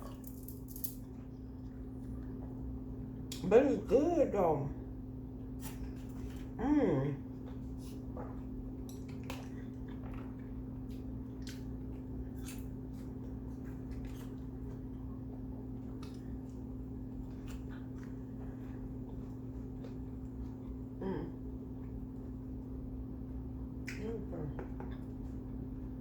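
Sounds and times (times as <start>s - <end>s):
low electrical hum: 0.0s - 26.0s
chewing food: 7.2s - 22.7s
person humming mmm: 21.0s - 21.4s.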